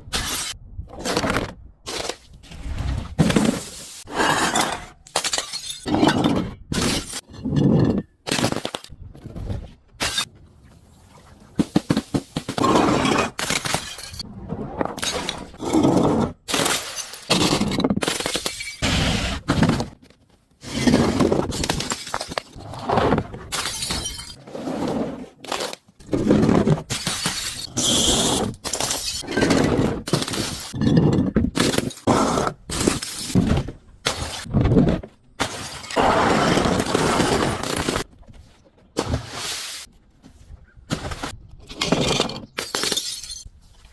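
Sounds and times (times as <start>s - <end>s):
glass bottles shattering: 4.5s - 8.0s, 13.4s - 14.2s, 16.5s - 18.8s, 23.5s - 24.4s, 26.9s - 28.0s, 42.0s - 43.5s.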